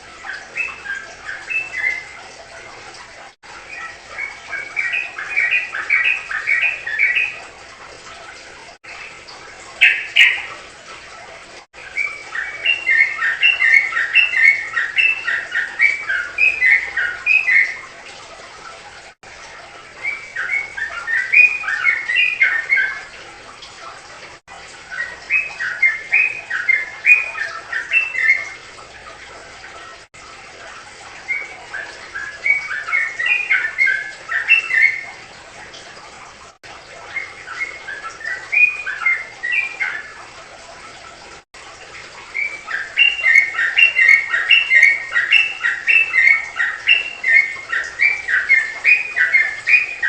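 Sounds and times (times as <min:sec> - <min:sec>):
songbird singing: 0:00.3 - 0:02.2, 0:03.7 - 0:07.4, 0:09.8 - 0:10.5, 0:11.8 - 0:17.8, 0:20.0 - 0:23.1, 0:24.9 - 0:28.6, 0:31.3 - 0:35.1, 0:37.1 - 0:40.2, 0:42.3 - 0:50.0.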